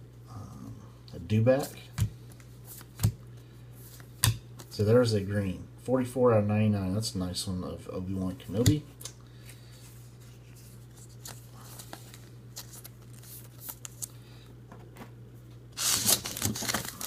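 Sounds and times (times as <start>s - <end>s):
low steady hum: 0.0s - 17.0s
trading cards sliding together: 15.8s - 17.0s
wrapper crinkling: 15.8s - 17.0s.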